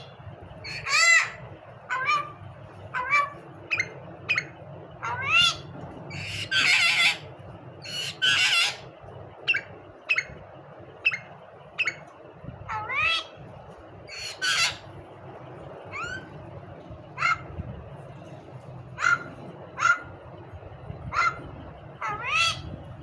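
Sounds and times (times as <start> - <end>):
myna harsh squawks: 0.7 - 2.4, 3.0 - 7.2, 7.9 - 8.8, 14.1 - 14.9, 19.0 - 20.1
myna whistled calls: 3.0 - 7.2, 7.8 - 8.8, 9.5 - 10.4, 11.0 - 12.1, 14.1 - 14.9.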